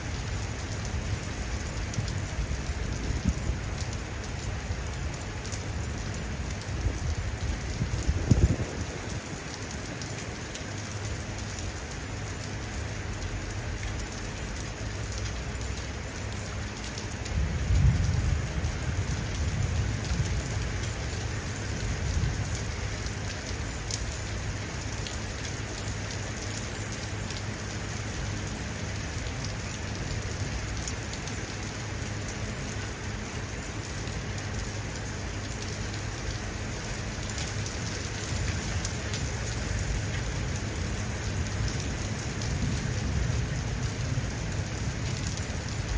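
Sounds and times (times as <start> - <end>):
steady rain falling: 0.0 - 45.9
distant thunder rumbling: 17.4 - 20.7.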